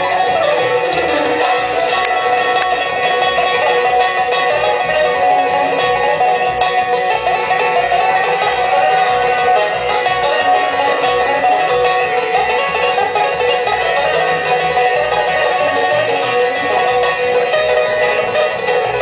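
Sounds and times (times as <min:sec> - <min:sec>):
banjo: 0:00.0 - 0:19.0
bluegrass string band: 0:00.0 - 0:19.0.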